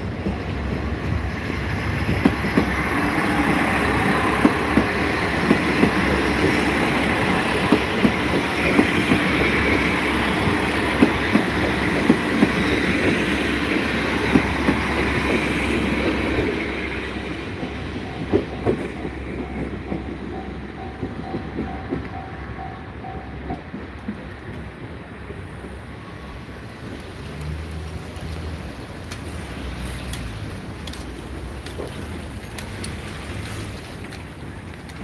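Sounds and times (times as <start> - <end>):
wheels clacking over rail joints: 0.0 - 25.0
train rumbling: 0.0 - 35.0.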